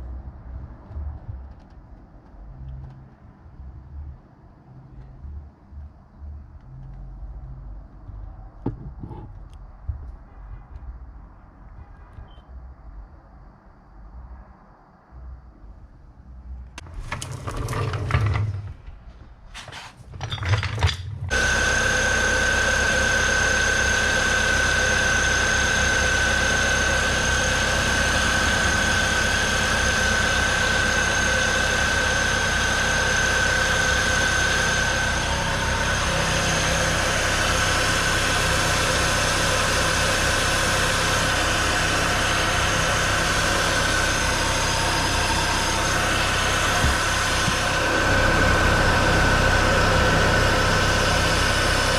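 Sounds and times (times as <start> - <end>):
car engine starting and idling: 20.3 - 51.9
high-pitched engine whine: 21.3 - 51.9.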